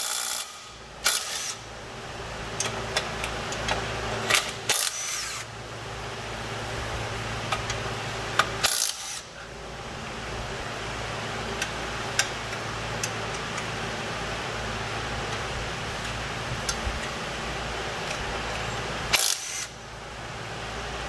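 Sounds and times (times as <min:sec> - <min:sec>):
steady low hum: 0:00.2 - 0:21.0
tools clicking and clinking: 0:02.6 - 0:05.5, 0:11.6 - 0:13.7.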